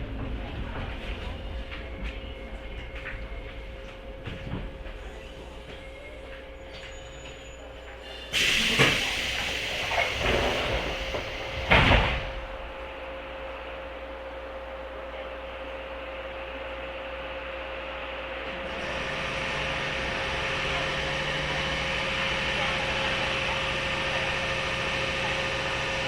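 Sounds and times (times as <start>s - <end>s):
electric train humming and whining: 0.0s - 26.0s
compressed air hiss of train doors: 8.1s - 12.5s.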